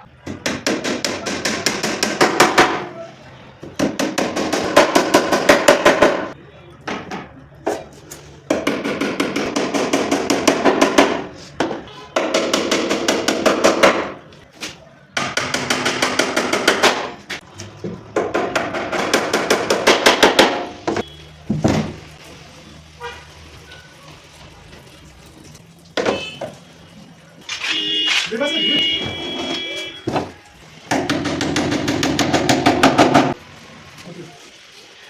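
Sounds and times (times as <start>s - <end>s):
rapid hammering on wood: 0.2s - 2.8s, 3.7s - 6.3s, 8.5s - 14.2s, 15.2s - 17.3s, 18.1s - 21.0s, 30.9s - 33.4s.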